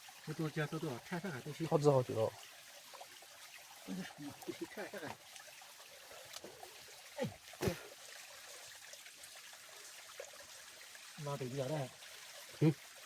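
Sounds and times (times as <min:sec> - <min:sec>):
trickle of flowing water: 0:00.0 - 0:13.0.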